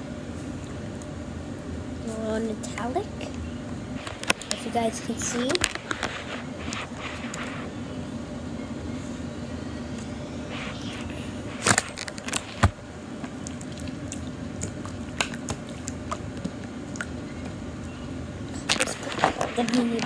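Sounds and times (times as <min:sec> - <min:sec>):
low background hum: 0:00.0 - 0:20.0
slime squelching: 0:10.6 - 0:17.6.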